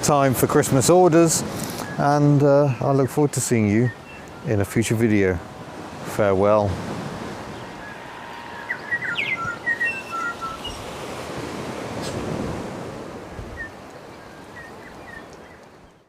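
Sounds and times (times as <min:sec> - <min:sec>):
sea surf washing: 0:00.0 - 0:15.8
small birds chirping: 0:01.5 - 0:05.6, 0:07.4 - 0:11.2, 0:13.3 - 0:16.0.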